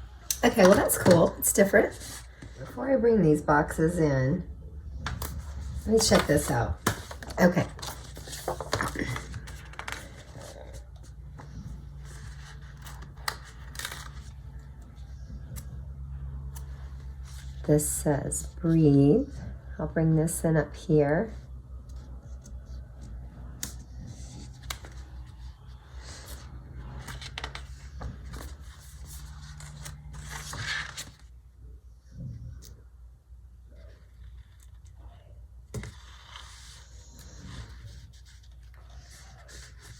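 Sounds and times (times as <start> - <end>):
steady low hum: 0.0 - 39.9
paper rustling and scraping: 0.5 - 2.8, 5.0 - 15.8, 21.9 - 31.3, 35.7 - 39.9.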